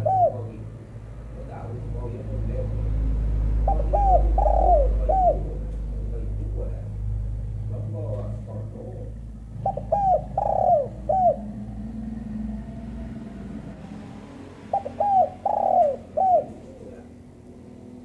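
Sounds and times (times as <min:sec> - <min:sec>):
dove cooing: 0:00.0 - 0:00.9, 0:03.5 - 0:06.7, 0:08.8 - 0:12.0, 0:14.6 - 0:17.4
low hum: 0:00.0 - 0:18.0.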